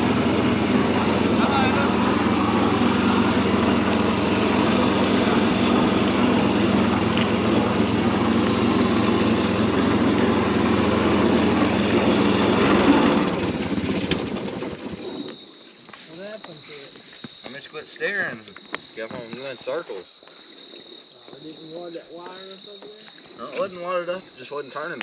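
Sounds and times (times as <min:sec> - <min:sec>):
small engine running: 0:00.0 - 0:15.5.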